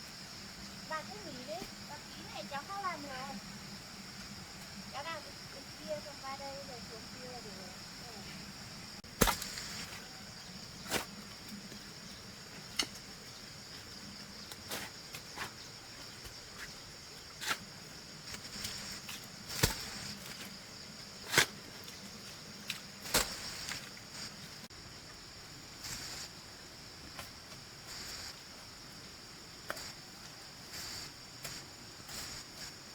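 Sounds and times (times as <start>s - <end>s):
high insect drone: 0.0s - 32.9s
digging tool striking wet soil: 9.0s - 9.9s, 10.8s - 11.2s, 19.5s - 20.4s, 21.2s - 21.6s, 22.7s - 23.8s.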